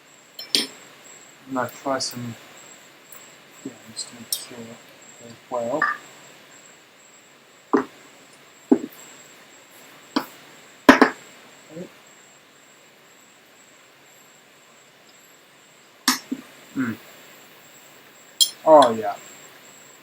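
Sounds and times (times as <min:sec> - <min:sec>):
kitchen utensils knocking and clicking: 0:10.9 - 0:11.2.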